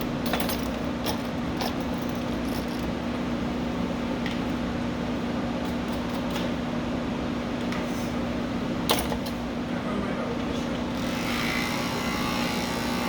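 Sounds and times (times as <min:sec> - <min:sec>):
electric clippers humming: 0:11.0 - 0:13.0.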